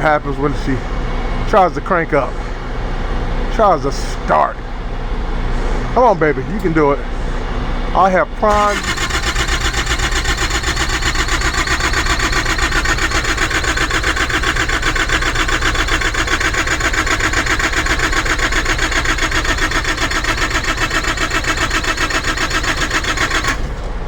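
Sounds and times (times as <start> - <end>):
diesel engine cranking: 8.4 - 24.0.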